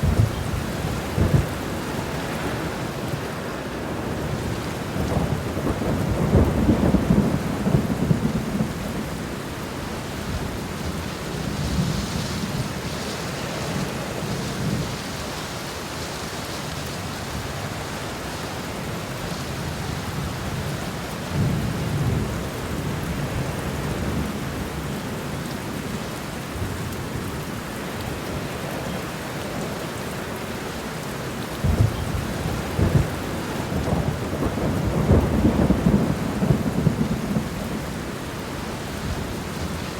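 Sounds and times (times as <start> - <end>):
thunder rumbling: 0.0 - 3.2, 3.9 - 15.1, 31.6 - 39.9
steady rain: 0.0 - 39.9.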